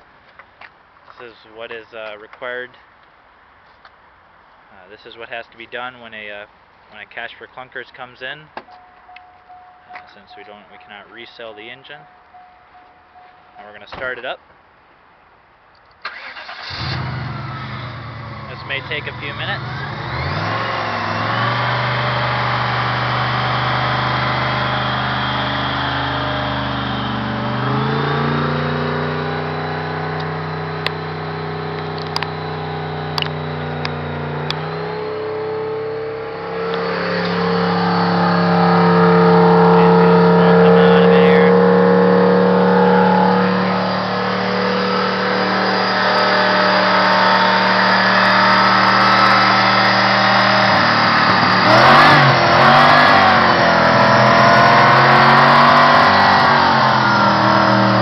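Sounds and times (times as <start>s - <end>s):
car engine running fast: 16.8s - 58.0s.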